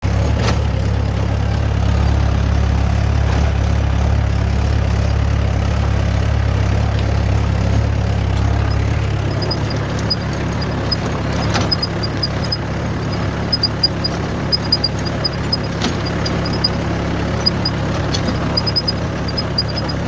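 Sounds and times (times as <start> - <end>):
tractor engine running: 0.0 - 20.0
light rapid ticking: 7.0 - 20.0.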